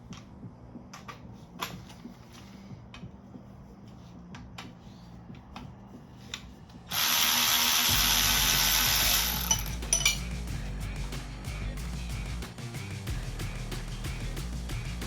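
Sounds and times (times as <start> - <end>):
power tool running: 6.9 - 9.8.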